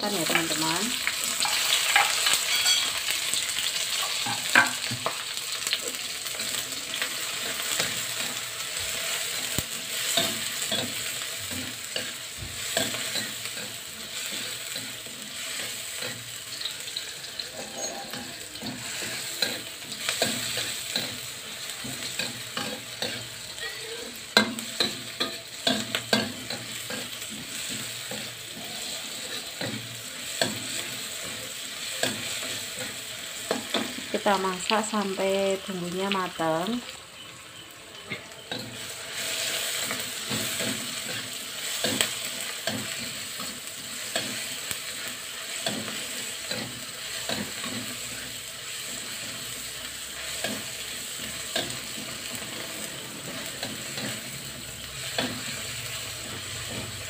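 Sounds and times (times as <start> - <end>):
vegetables sizzling in hot oil: 0.0 - 57.0
metal spatula scraping a pan: 1.4 - 5.0, 6.2 - 34.1.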